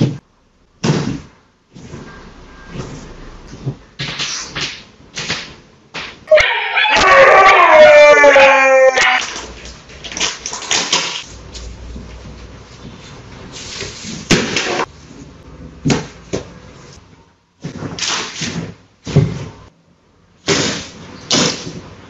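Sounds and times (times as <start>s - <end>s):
plastic basket clattering on tile: 9.1s - 11.3s.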